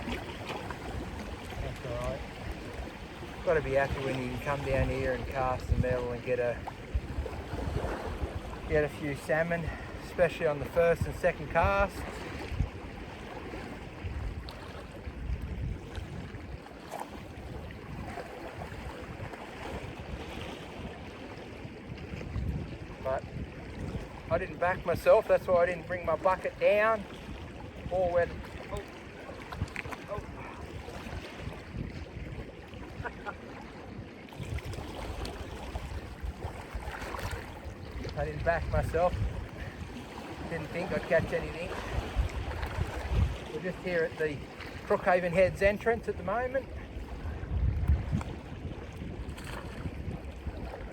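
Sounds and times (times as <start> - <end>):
surf on rocks: 0.0 - 14.0, 16.6 - 50.1
wind buffeting microphone: 0.0 - 50.9.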